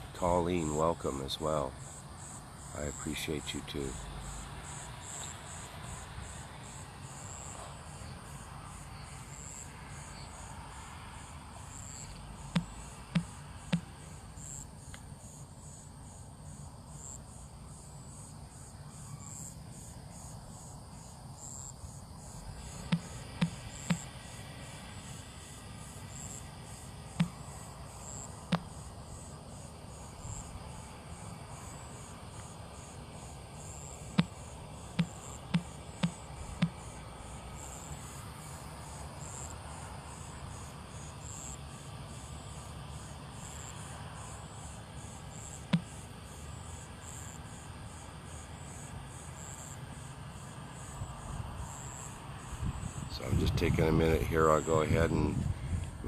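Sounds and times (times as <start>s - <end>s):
crickets chirping: 0.0s - 56.0s
low background hum: 0.0s - 56.0s
sharp clicks: 12.0s - 13.9s, 22.8s - 24.1s, 35.0s - 36.8s.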